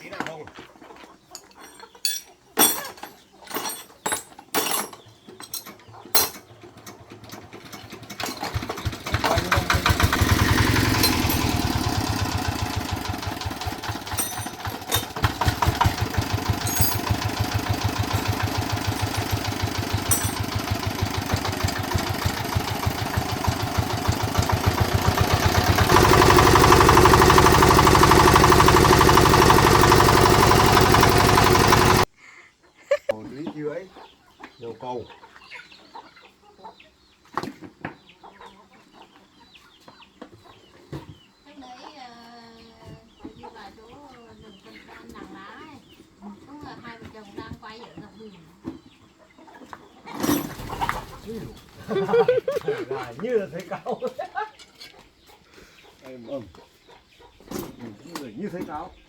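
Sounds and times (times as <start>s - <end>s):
metallic clinks and knocks: 1.4s - 8.5s, 13.8s - 15.4s, 16.4s - 20.9s
diesel engine running: 8.2s - 32.1s.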